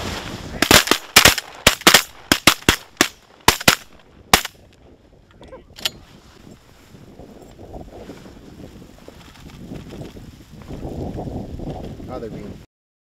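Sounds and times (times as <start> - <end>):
shotgun shots: 0.6 - 4.6.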